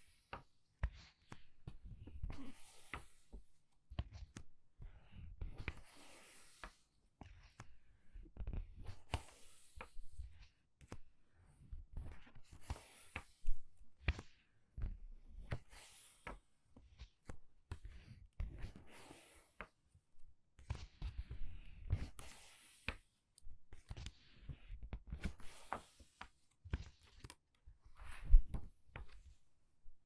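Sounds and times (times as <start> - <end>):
book pages turning: 23.8 - 29.4.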